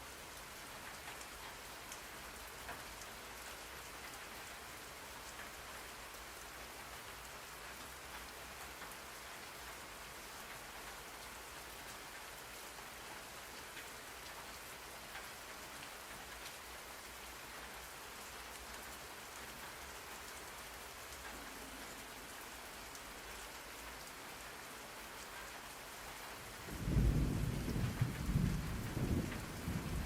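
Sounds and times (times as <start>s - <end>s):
rain hissing on a surface: 0.0s - 30.0s.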